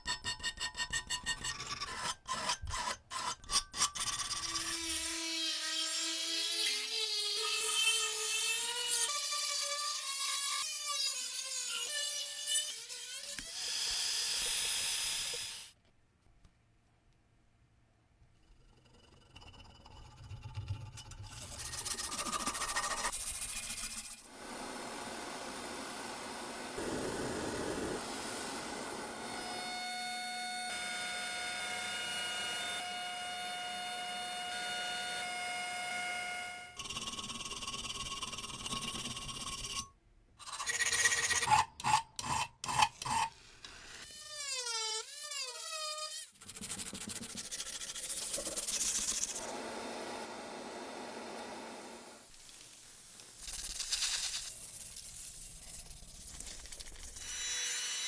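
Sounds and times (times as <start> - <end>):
filing metal by hand: 0.0 - 15.7, 18.3 - 24.4, 36.8 - 49.5, 53.4 - 58.0.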